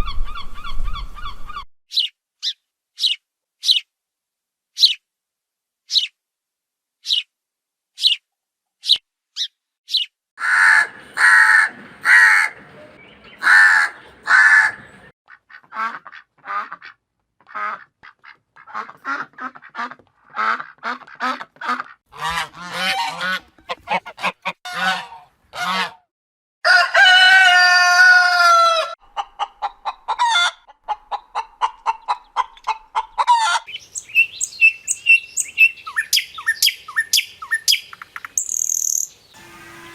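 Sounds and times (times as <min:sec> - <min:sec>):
birds calling: 0:08.8 - 0:15.1, 0:32.0 - 0:39.9.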